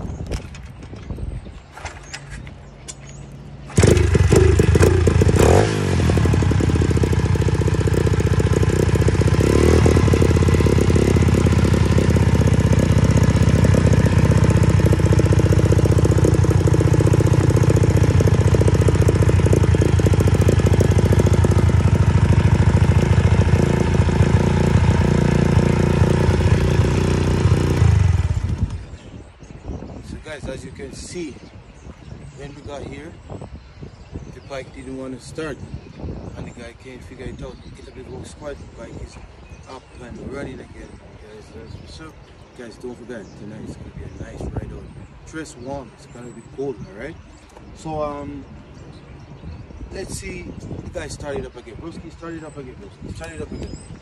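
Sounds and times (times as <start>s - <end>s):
dirt bike engine idling: 3.6s - 29.1s.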